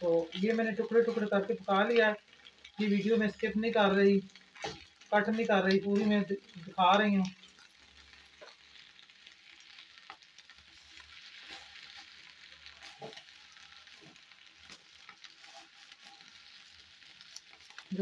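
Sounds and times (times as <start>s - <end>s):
eggs sizzling in a pan: 0.0s - 18.0s
spatula scraping and tapping: 12.8s - 13.3s.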